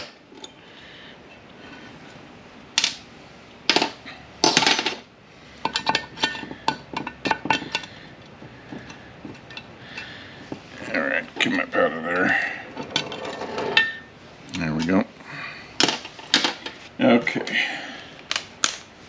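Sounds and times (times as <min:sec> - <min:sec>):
metal parts knocking: 0:05.6 - 0:10.6.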